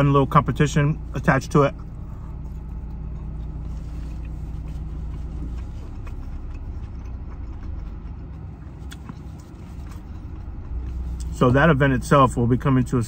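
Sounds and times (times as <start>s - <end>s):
low car cabin rumble: 0.0s - 13.0s
chewing food close-up: 1.2s - 13.0s
wet mouth clicks: 5.2s - 11.4s.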